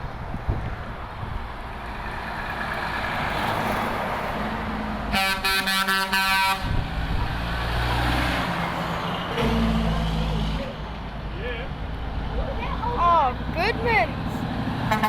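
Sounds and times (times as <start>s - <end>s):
passing trucks: 0.0s - 15.0s
truck air horn blasts: 5.1s - 6.8s.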